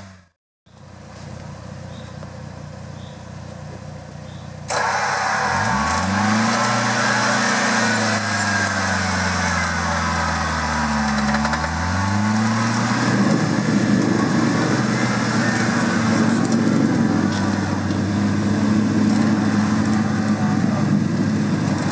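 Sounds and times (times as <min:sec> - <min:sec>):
engine revving hard: 0:04.7 - 0:21.9.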